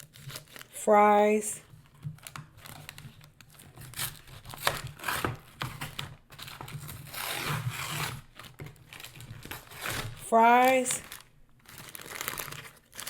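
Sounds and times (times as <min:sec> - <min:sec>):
food packaging crinkling: 0:00.0 - 0:00.8, 0:08.1 - 0:10.2, 0:10.9 - 0:13.0.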